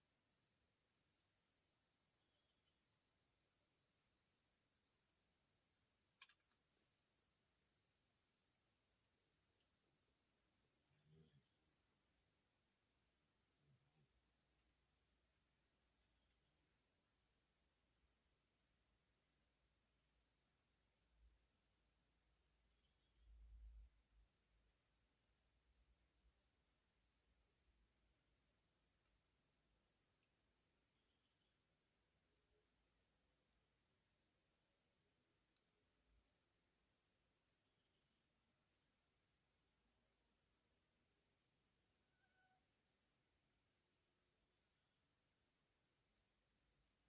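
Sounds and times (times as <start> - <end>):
insects chorus trilling: 41.2 - 44.2.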